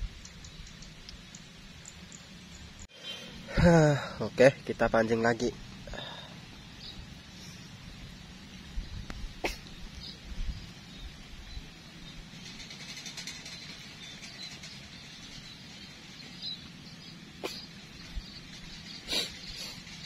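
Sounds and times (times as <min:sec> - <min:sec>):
faint bird chirping: 0:00.0 - 0:20.0.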